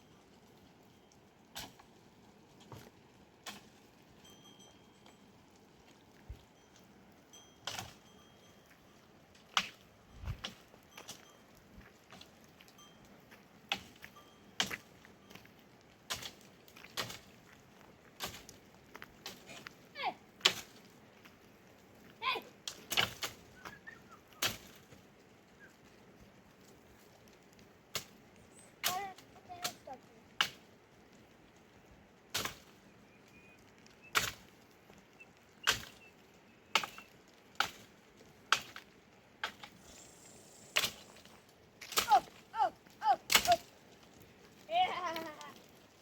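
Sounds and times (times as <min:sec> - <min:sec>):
sharp chopping strikes: 0:39.4 - 0:41.2.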